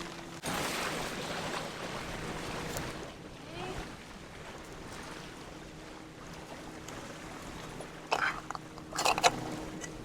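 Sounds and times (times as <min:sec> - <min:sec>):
utensils clattering against pot: 0:08.1 - 0:09.9.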